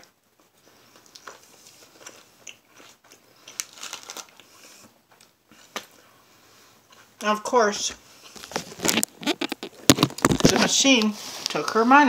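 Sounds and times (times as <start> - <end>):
crunchy chewing of lettuce: 0.6 - 4.9, 8.2 - 10.4.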